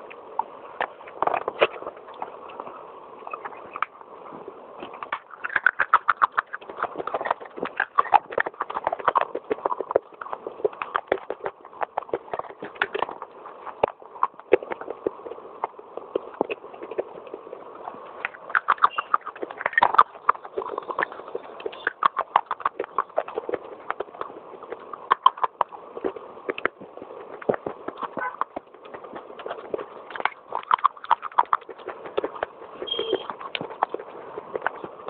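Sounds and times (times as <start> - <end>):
clay pot pieces crunching: 4.8 - 35.0.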